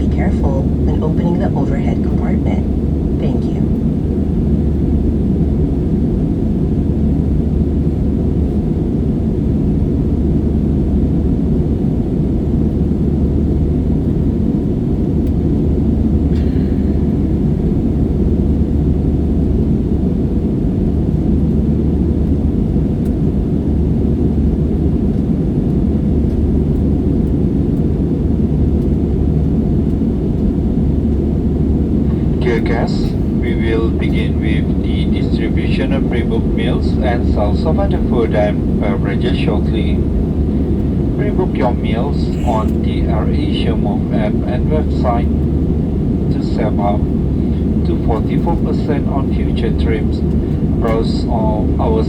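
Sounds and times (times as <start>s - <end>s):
jet engine rumble in cabin: 0.0s - 52.0s.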